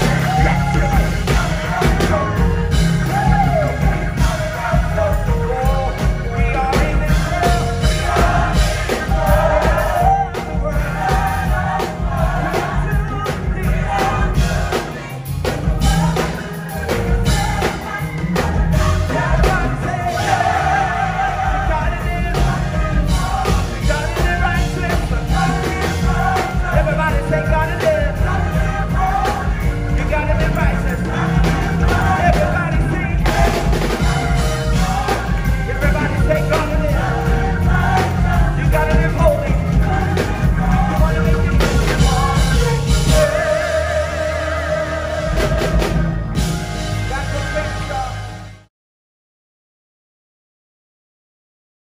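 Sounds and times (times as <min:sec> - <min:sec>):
gospel choir singing: 0:00.0 - 0:48.5
live band with drums: 0:00.0 - 0:48.7.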